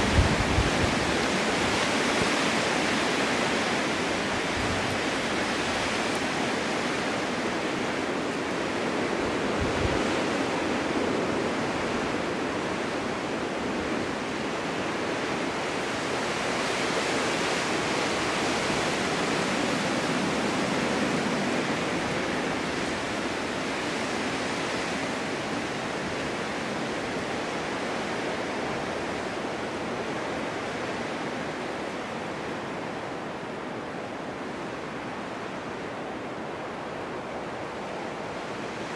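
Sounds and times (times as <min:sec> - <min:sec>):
storm wind blowing: 0:00.0 - 0:16.2.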